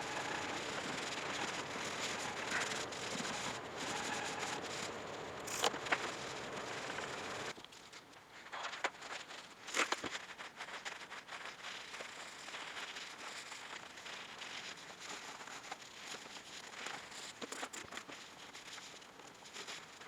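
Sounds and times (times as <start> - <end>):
sharp scrapes: 0.0 - 7.5.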